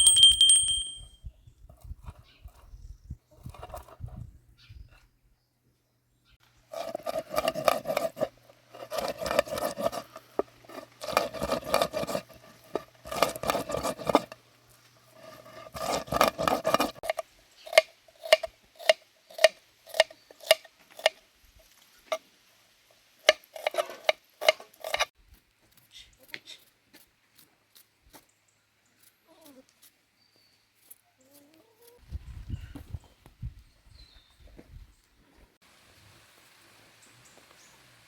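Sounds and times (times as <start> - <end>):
metal utensil tapping cookware: 0.0 - 1.1.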